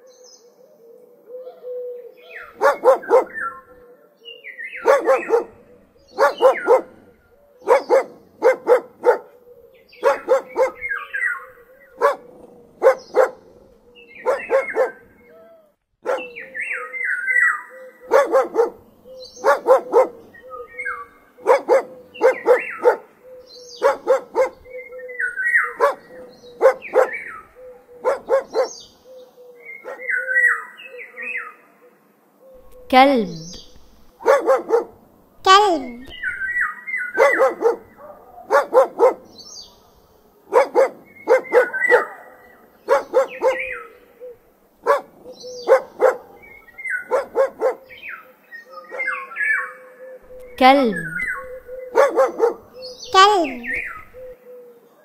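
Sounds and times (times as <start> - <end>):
dog barking: 2.5 - 3.8, 4.8 - 9.4, 10.0 - 11.3, 11.9 - 15.2, 16.0 - 16.4, 18.0 - 20.4, 21.4 - 23.2, 23.8 - 24.7, 25.6 - 28.8, 29.8 - 30.2, 32.6 - 43.9, 44.8 - 47.9, 48.9 - 49.3, 50.3 - 54.3.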